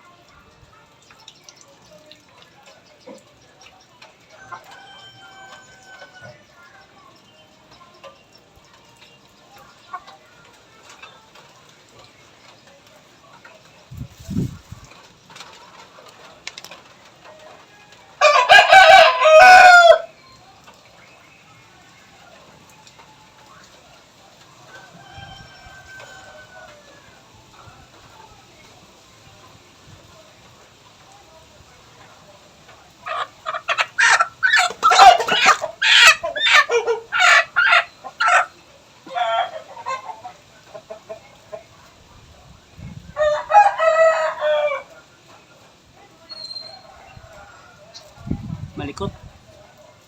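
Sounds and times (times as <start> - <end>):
rooster crowing: 4.4 - 6.5, 17.9 - 20.2, 24.7 - 27.7, 39.1 - 40.0, 43.2 - 45.0
chicken rattling cluck: 33.0 - 38.5
chicken squawking: 33.0 - 40.3.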